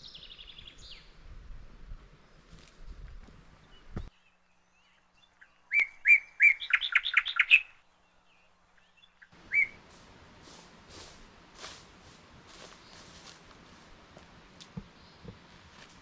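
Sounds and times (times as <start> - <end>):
songbird calling: 0.0 - 1.1, 3.6 - 9.9.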